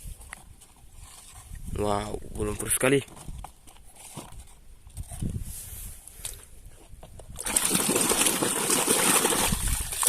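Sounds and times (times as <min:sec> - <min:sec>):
water splashing: 0:07.4 - 0:10.0.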